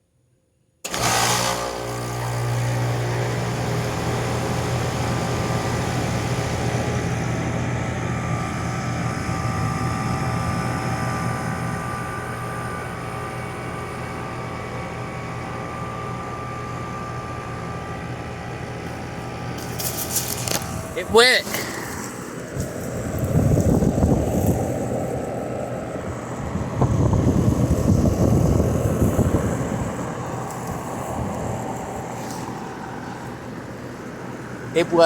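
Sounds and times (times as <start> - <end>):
air conditioner compressor humming: 0.9 - 35.0
fan rush: 0.9 - 35.0.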